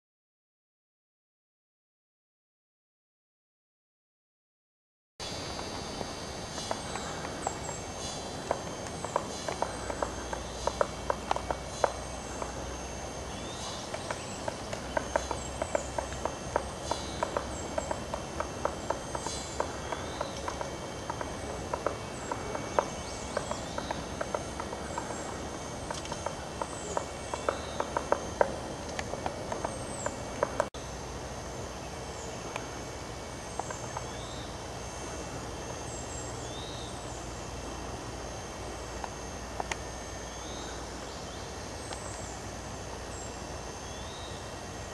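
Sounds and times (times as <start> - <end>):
birds giving falling call notes: 5.2 - 30.7
woodpecker tapping on wood: 8.4 - 12.6, 13.8 - 30.7, 33.6 - 34.2.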